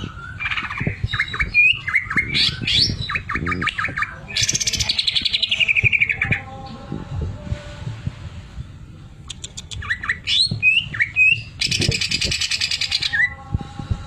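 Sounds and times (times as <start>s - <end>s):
bird whistling and chirping: 0.0s - 6.5s, 9.3s - 13.4s.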